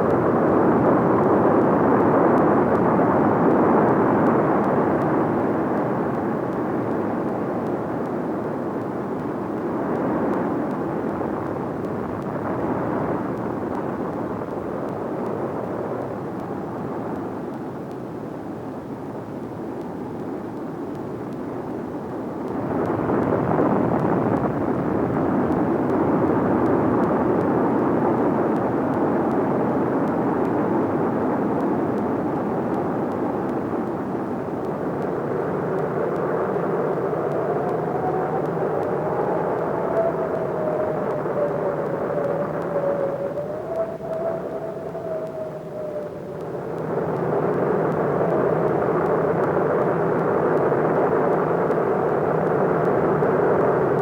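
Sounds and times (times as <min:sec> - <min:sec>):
lava fountain roaring: 0:31.0 - 0:54.0
faint rising whistle: 0:37.7 - 0:46.8.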